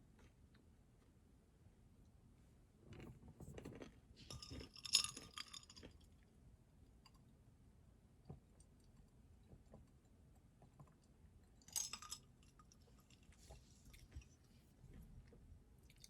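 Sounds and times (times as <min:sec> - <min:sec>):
faint clicks and taps: 0:08.2 - 0:11.6.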